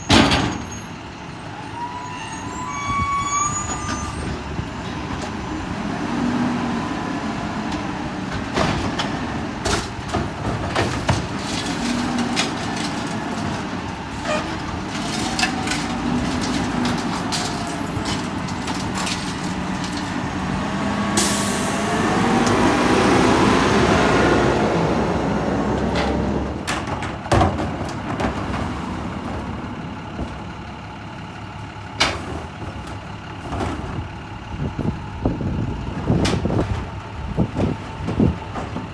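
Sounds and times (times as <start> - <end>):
diesel engine running: 4.1 - 38.9
clanks and knocks: 7.7 - 20.5, 25.8 - 30.6, 32.0 - 34.2
air brake hiss: 21.2 - 21.9.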